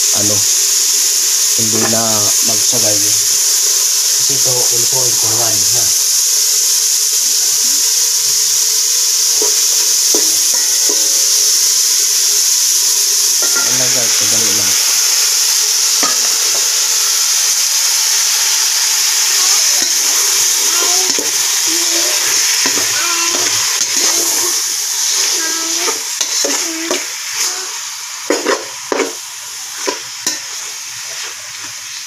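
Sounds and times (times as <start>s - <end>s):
food sizzling in hot oil: 0.0s - 32.0s
metal spoon scraping a pot: 22.6s - 27.6s, 28.3s - 29.2s.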